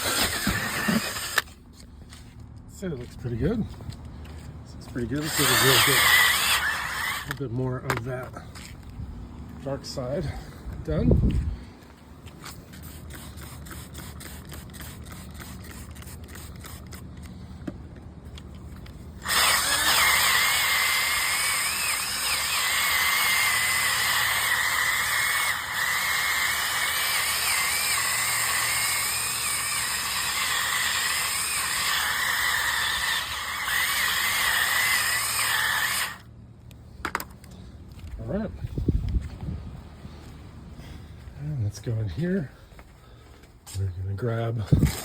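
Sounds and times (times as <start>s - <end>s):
powered scrubbing brush on mat: 0.0s - 9.0s, 9.6s - 36.2s, 43.7s - 45.0s
quick scrubbing strokes: 12.4s - 17.5s.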